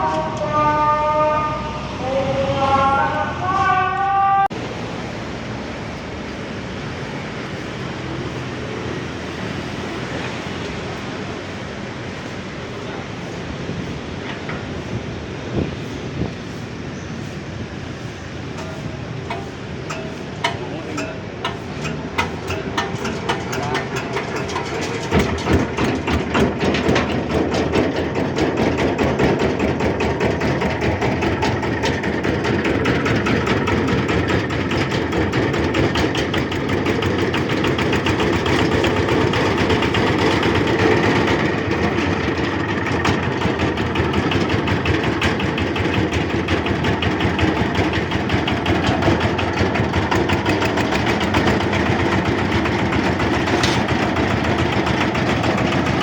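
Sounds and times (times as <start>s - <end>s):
diesel engine chugging: 0.0s - 56.0s.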